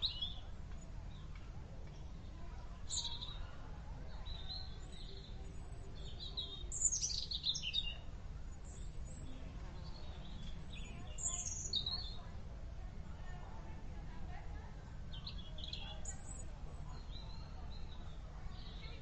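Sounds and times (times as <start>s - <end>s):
small birds chirping: 0.0s - 12.4s, 14.6s - 19.0s
low background noise: 0.0s - 19.0s.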